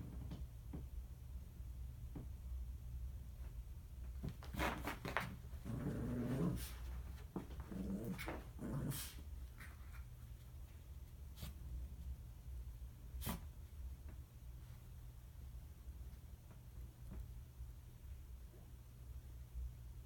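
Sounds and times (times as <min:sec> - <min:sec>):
dog pawing at blanket: 0:04.0 - 0:10.1
dog making low vocal sounds: 0:07.6 - 0:09.2.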